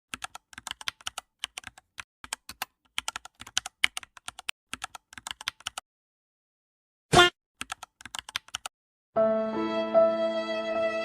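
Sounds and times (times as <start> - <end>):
computer keyboard typing: 0.1 - 5.8, 7.6 - 8.7.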